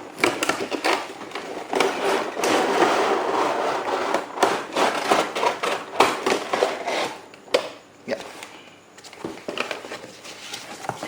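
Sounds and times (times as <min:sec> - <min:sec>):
cardboard rubbing and scraping: 0:01.8 - 0:07.2.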